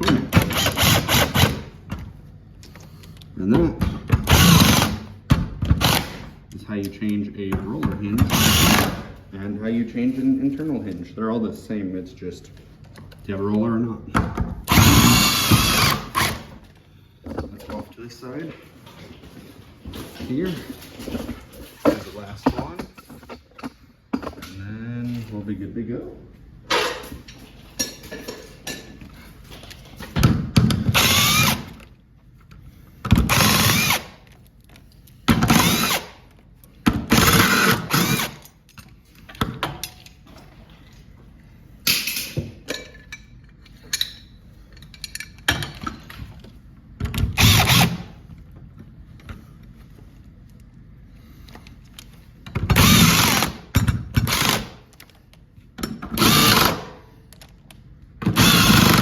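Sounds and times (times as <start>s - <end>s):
power drill driving screws: 0.2s - 1.7s, 4.2s - 5.1s, 5.7s - 6.3s, 8.2s - 9.1s, 14.7s - 16.5s, 30.8s - 31.8s, 33.1s - 34.2s, 35.4s - 36.2s, 37.1s - 38.4s, 47.4s - 48.1s, 52.7s - 53.6s, 54.2s - 54.8s, 56.2s - 56.9s, 58.3s - 59.0s.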